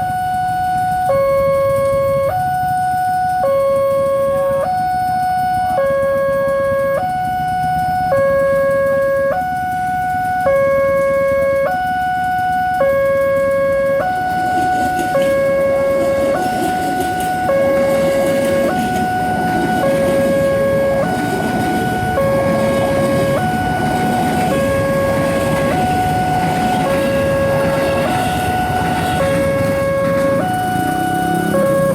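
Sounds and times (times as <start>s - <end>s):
level crossing two-tone alarm: 0.0s - 31.9s
rumbling noise: 14.1s - 31.9s.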